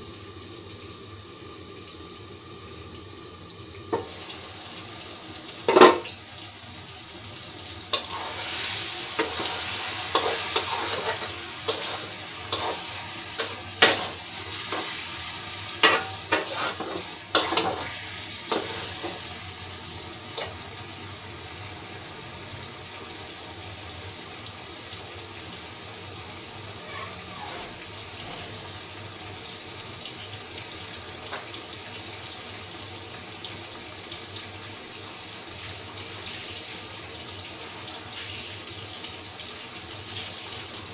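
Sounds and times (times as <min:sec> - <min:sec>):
food sizzling in a pan: 0:00.0 - 0:40.9
spatula scraping a pan: 0:07.9 - 0:19.6, 0:20.3 - 0:20.7, 0:26.6 - 0:28.7.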